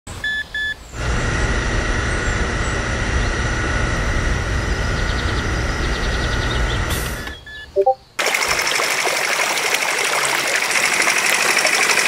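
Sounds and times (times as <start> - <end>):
machine hum with whining tones: 0.9 - 7.6.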